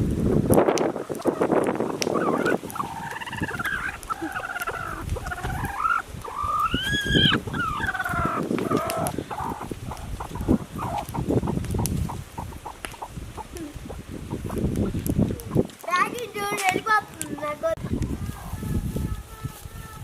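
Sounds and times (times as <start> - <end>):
poultry calling: 1.0 - 16.0.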